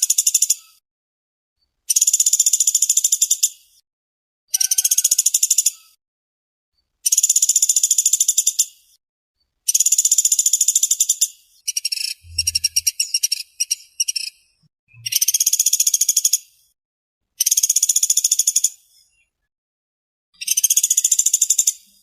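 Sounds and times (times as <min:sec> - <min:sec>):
woodpecker rattling trill calls: 0:01.9 - 0:03.5, 0:04.5 - 0:06.0, 0:07.0 - 0:08.7, 0:09.7 - 0:16.5, 0:20.4 - 0:21.9.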